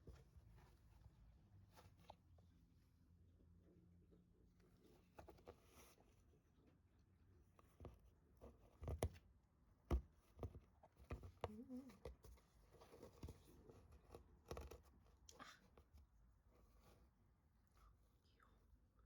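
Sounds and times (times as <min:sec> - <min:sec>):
faint taps clicks and rustles: 0:07.4 - 0:09.2, 0:09.8 - 0:17.1.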